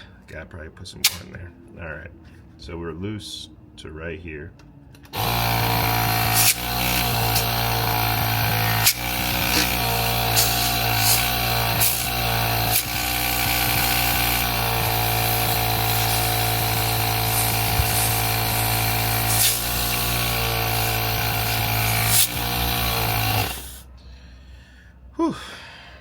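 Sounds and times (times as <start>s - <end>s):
air compressor motor running: 5.1s - 24.0s.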